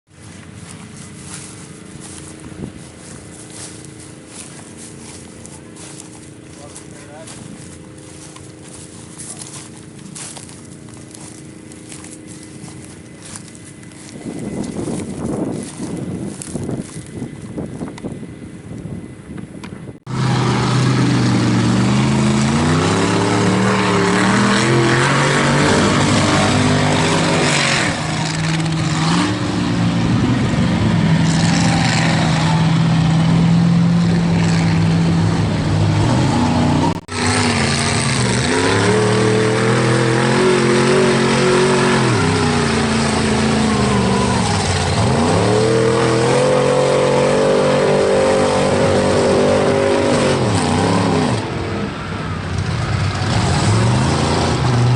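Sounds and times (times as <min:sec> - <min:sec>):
truck engine revving in mud: 0:20.0 - 0:54.9.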